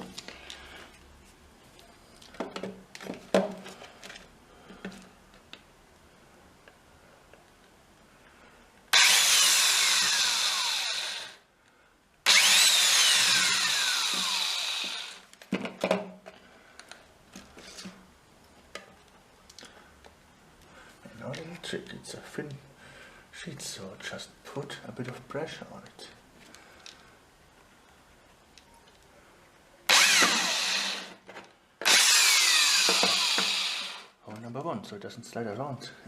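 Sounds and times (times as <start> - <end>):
power drill drilling into sheet metal: 8.9 - 11.4, 12.3 - 15.2, 29.9 - 31.2, 31.8 - 34.2.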